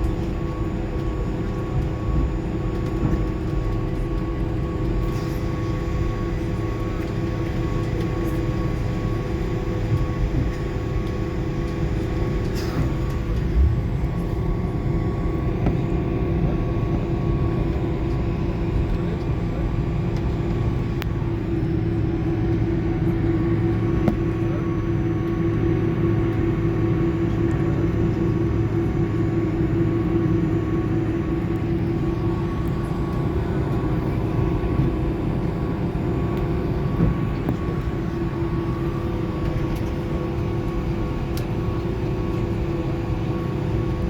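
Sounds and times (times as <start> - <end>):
airplane cabin rumble: 0.0 - 44.0
steady whine: 9.4 - 43.8.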